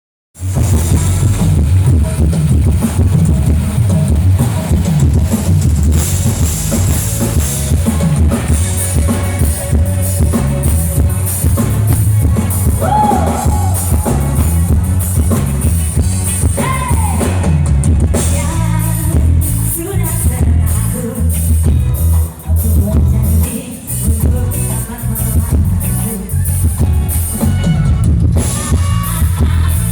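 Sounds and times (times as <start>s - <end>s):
drum kit beat: 0.4s - 29.9s
heavy bass: 0.4s - 29.9s
live band playing: 0.4s - 29.9s.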